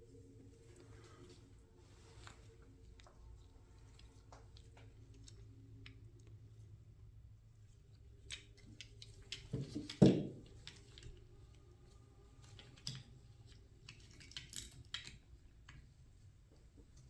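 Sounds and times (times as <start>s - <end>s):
tools and parts clicking: 12.4s - 15.8s.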